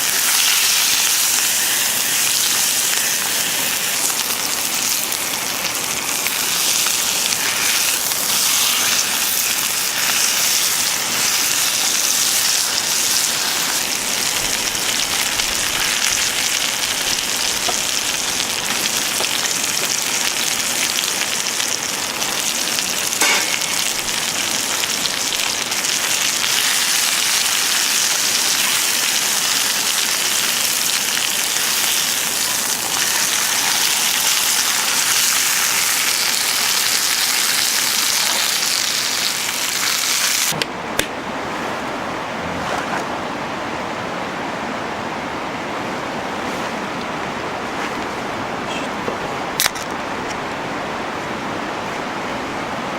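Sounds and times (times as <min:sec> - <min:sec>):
food sizzling in a skillet: 0:00.0 - 0:40.6.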